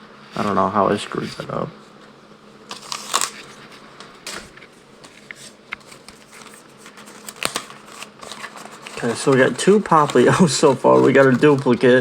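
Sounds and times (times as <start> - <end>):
paper packaging rustling: 2.7 - 12.0
trading cards rustling: 2.7 - 12.0.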